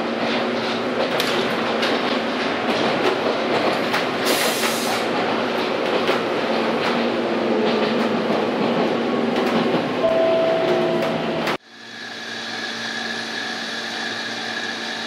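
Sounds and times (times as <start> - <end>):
electric train running noise: 0.0 - 15.0
wheels clicking over rail joints: 0.2 - 10.0.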